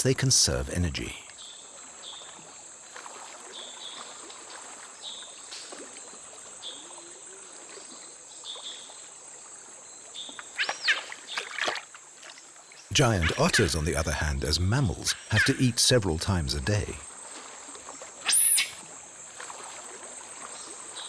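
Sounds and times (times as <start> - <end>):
loud sharp calls: 12.9 - 17.0, 18.2 - 18.8
short chirp: 18.2 - 18.8.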